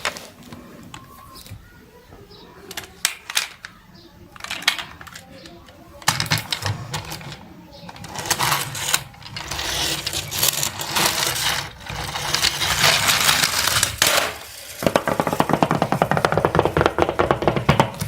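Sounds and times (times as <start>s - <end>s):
rattling and scraping: 4.4s - 18.0s.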